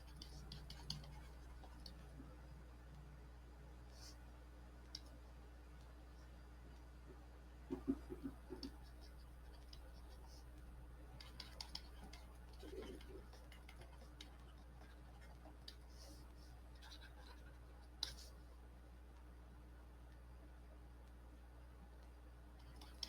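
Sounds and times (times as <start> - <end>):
pen scratching while writing: 0.0 - 2.0, 11.2 - 18.3.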